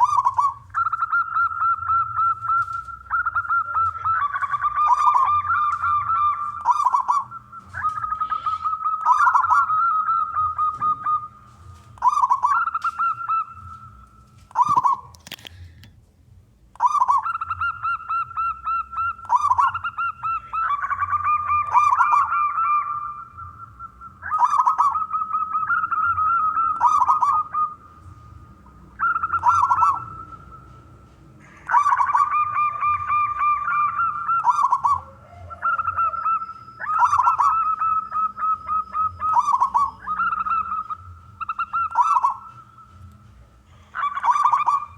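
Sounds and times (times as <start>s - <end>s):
dove cooing: 0.0s - 15.4s, 16.8s - 44.9s.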